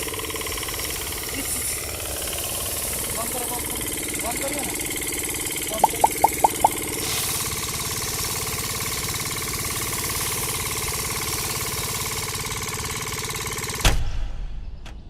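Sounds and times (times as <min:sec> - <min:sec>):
short high chirps: 0:05.8 - 0:06.8
small engine knocking and whining: 0:08.4 - 0:13.8.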